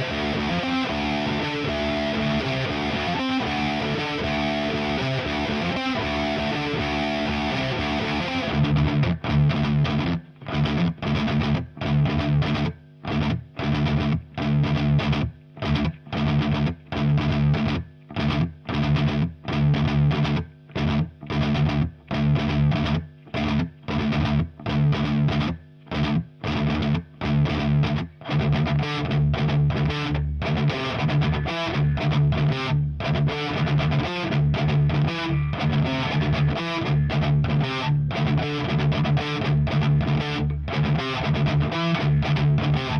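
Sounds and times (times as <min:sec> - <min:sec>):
distorted electric guitar riff: 0:00.0 - 0:42.9.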